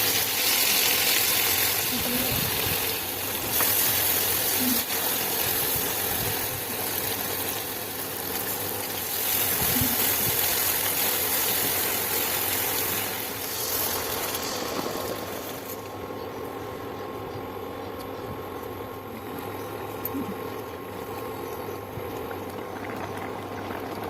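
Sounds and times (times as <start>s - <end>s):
hot oil sizzling in a pan: 0.0s - 15.9s.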